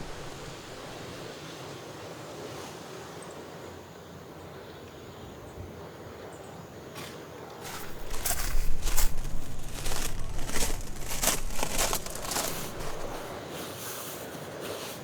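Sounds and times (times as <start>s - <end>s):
crinkling rustling handling noise: 0.0s - 1.1s, 7.6s - 13.3s.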